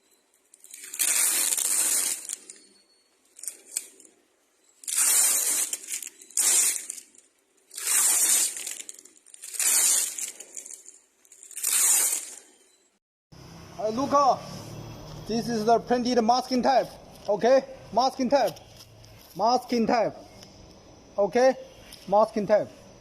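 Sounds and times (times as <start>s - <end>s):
adhesive tape ripping off roll: 0.6s - 2.6s, 4.8s - 12.6s.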